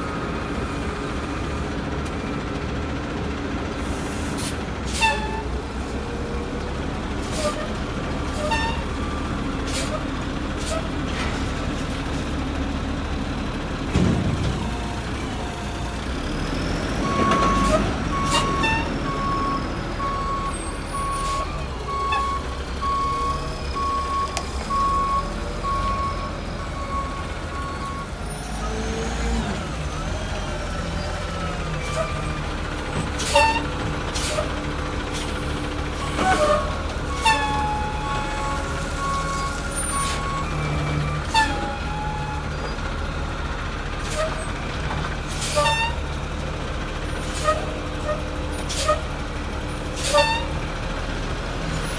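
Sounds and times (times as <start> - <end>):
diesel engine running: 0.0 - 51.9
reversing alarm beeping: 17.0 - 28.2.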